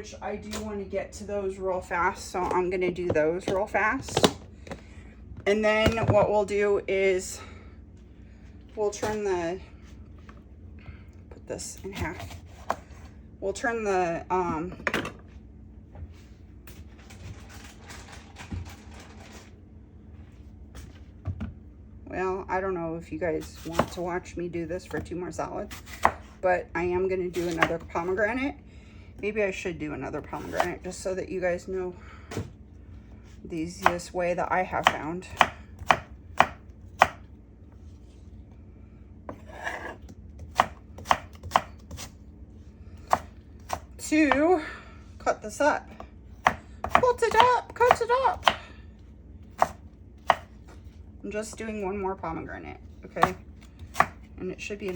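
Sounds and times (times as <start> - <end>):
low steady hum: 0.0 - 54.9
knife chopping on cutting board: 25.7 - 26.3, 27.4 - 27.8, 34.8 - 37.2, 39.3 - 42.1, 43.1 - 44.4, 46.4 - 48.6, 49.6 - 50.5, 53.2 - 54.2.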